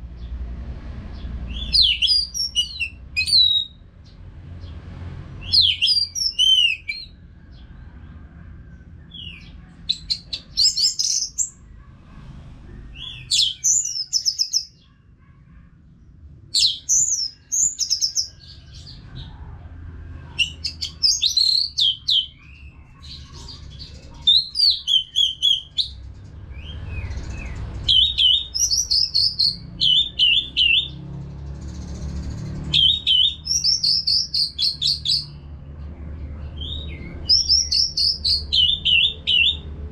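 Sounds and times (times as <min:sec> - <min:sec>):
thrush singing whistles and chatters: 0:01.5 - 0:03.8, 0:05.4 - 0:07.2, 0:09.1 - 0:11.6, 0:12.9 - 0:14.9, 0:16.6 - 0:19.0, 0:20.4 - 0:26.0, 0:26.6 - 0:31.0, 0:31.6 - 0:35.4, 0:36.6 - 0:39.7.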